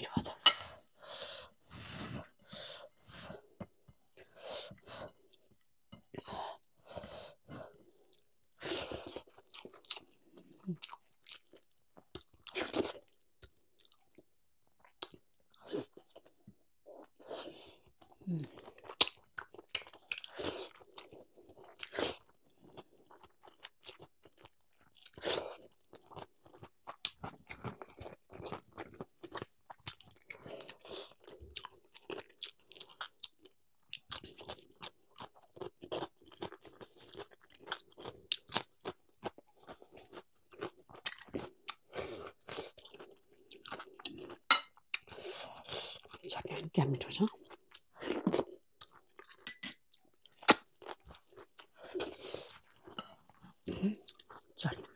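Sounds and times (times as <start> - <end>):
person crunching food: 18.5 - 46.2, 47.4 - 54.9.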